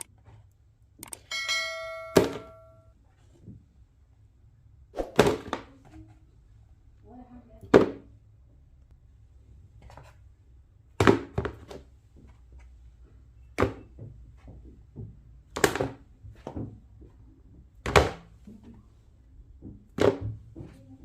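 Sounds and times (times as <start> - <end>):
hard objects thunking on surface: 19.6 - 20.8.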